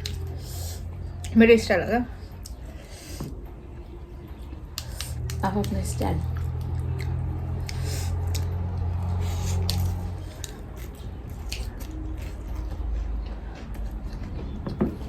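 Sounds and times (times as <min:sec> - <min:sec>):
wet chewing: 0:00.0 - 0:01.4, 0:02.2 - 0:03.2, 0:04.4 - 0:15.0
low steady rumble: 0:00.0 - 0:15.0.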